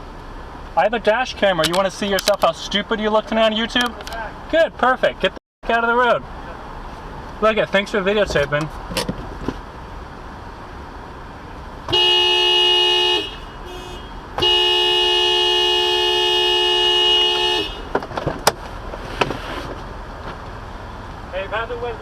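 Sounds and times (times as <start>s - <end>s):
car horn honking: 11.8s - 18.0s.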